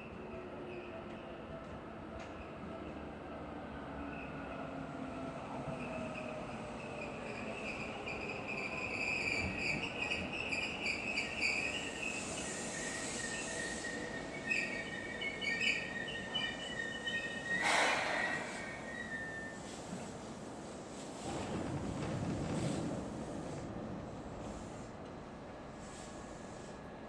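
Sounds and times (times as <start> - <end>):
train squealing tones: 0.1 - 1.4, 3.8 - 20.0
air hiss burst: 17.6 - 18.9.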